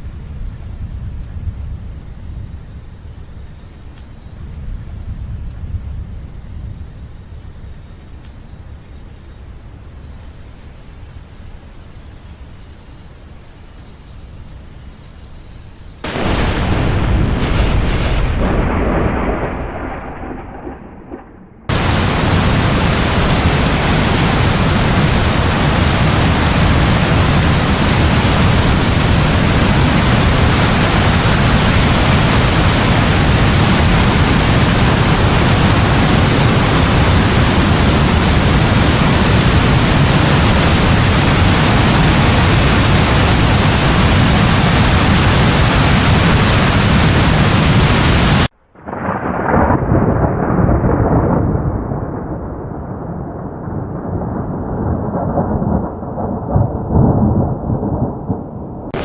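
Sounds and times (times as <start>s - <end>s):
thunderclap rumbling: 0.0s - 2.6s, 4.4s - 7.0s, 16.0s - 59.0s
heavy rain: 0.0s - 59.0s.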